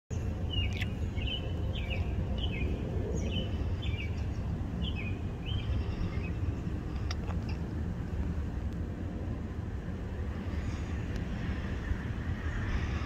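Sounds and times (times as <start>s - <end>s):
bird chirping: 0.1s - 6.6s
low rumble: 0.1s - 13.0s.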